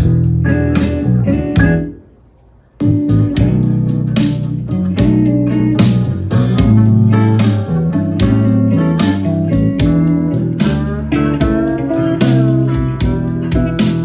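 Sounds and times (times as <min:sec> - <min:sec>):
music with guitar and bass: 0:00.0 - 0:02.1, 0:02.8 - 0:14.0.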